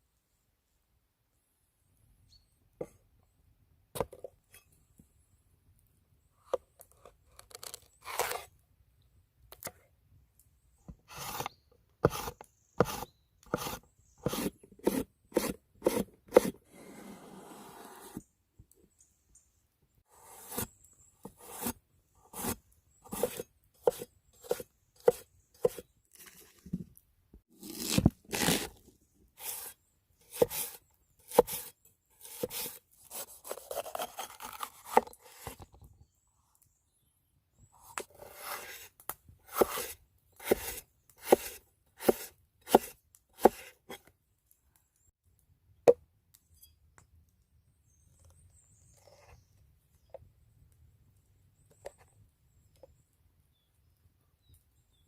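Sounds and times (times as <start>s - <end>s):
knife scraping on board: 11.1s - 18.2s, 20.2s - 26.6s, 30.3s - 35.6s, 39.5s - 44.0s
knife chopping on wooden board: 11.2s - 16.5s, 22.4s - 25.8s, 39.5s - 43.7s.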